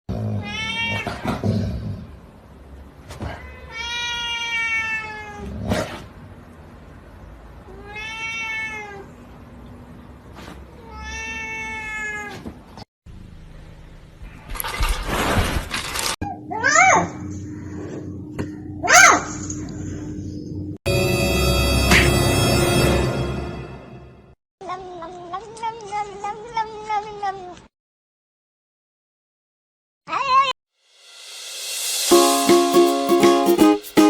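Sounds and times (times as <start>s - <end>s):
cat meowing: 0.4s - 1.2s, 3.3s - 5.5s, 7.7s - 9.2s, 10.8s - 12.4s.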